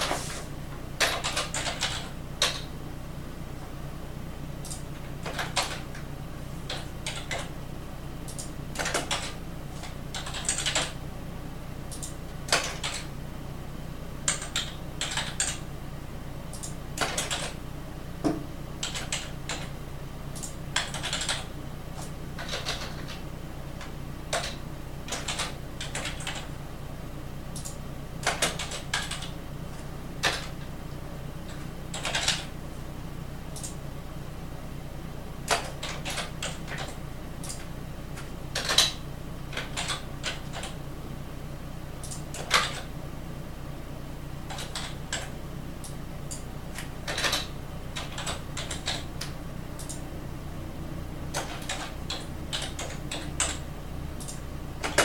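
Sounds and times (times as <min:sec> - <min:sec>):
steady low hum: 0:00.0 - 0:55.0
computer keyboard keystrokes: 0:01.0 - 0:02.7, 0:04.6 - 0:06.1, 0:06.7 - 0:07.5, 0:08.3 - 0:11.0, 0:11.9 - 0:13.1, 0:14.3 - 0:15.6, 0:16.5 - 0:17.6, 0:18.8 - 0:19.7, 0:20.3 - 0:23.2, 0:23.8 - 0:26.5, 0:27.6 - 0:29.4, 0:30.2 - 0:30.6, 0:31.5 - 0:32.5, 0:33.6 - 0:33.8, 0:35.5 - 0:40.8, 0:42.0 - 0:42.9, 0:44.5 - 0:50.0, 0:51.3 - 0:53.6, 0:54.2 - 0:55.0.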